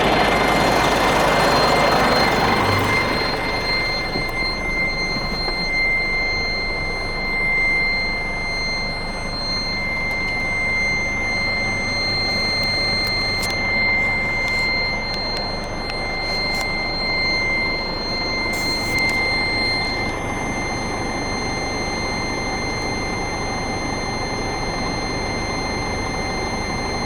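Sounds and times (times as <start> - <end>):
truck engine running: 0.0 - 7.5
constant high-pitched tone: 0.0 - 27.0.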